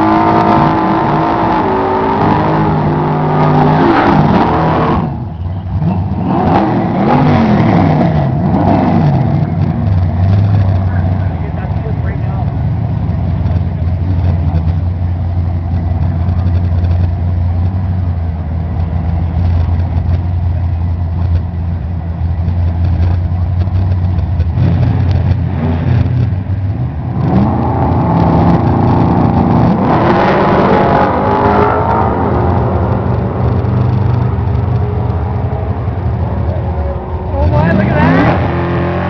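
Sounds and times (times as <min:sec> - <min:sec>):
engine revving hard: 0:00.0 - 0:05.2, 0:05.8 - 0:09.5, 0:27.1 - 0:34.0, 0:37.2 - 0:39.0
engine idle rumble: 0:09.3 - 0:27.2, 0:32.4 - 0:38.0.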